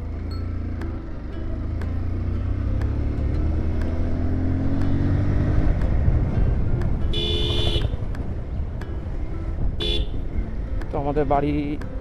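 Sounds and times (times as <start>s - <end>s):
road and wind noise: 0.0s - 12.0s
vehicle horn: 7.1s - 8.0s, 9.8s - 10.2s.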